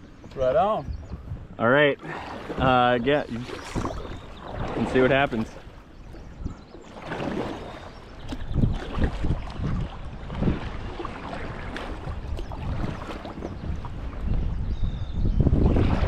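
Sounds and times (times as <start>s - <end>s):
water against kayak hull: 0.0s - 16.0s
wind buffeting microphone: 0.0s - 16.0s
paddle splashing water: 2.0s - 14.7s.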